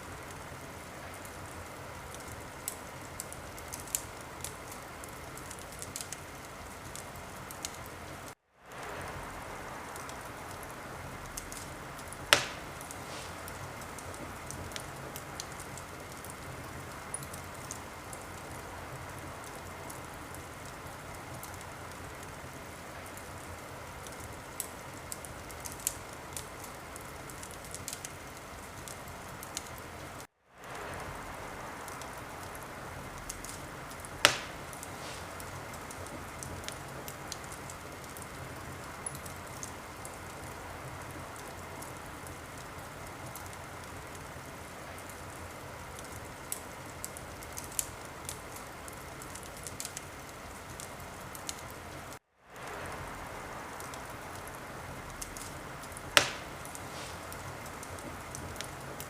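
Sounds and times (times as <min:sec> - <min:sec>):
wood fire crackling: 0:00.0 - 0:59.0
loud pop from fire: 0:11.3 - 0:15.6, 0:33.3 - 0:37.5, 0:56.1 - 0:58.7.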